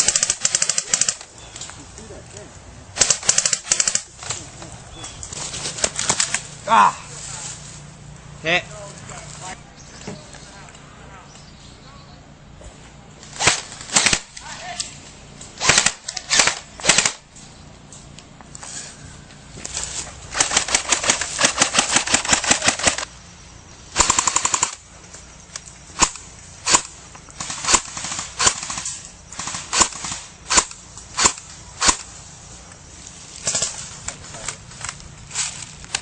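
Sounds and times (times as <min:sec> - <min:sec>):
airsoft guns firing: 0:00.0 - 0:01.3, 0:03.0 - 0:04.4, 0:13.4 - 0:14.8, 0:15.6 - 0:17.3, 0:20.3 - 0:23.1, 0:23.9 - 0:24.8, 0:26.0 - 0:32.2.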